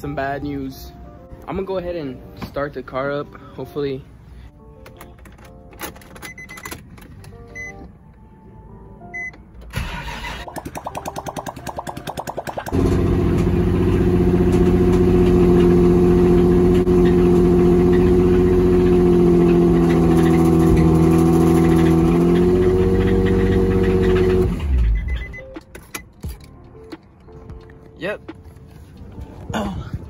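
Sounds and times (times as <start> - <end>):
car starter cranking: 9.6 - 10.8
car engine running with knock: 12.7 - 24.6.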